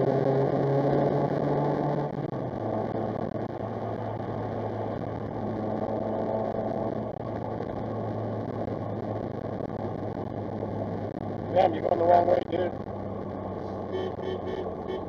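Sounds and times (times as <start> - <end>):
road rumble: 0.0 - 15.0
vehicle engine hum: 0.0 - 15.0.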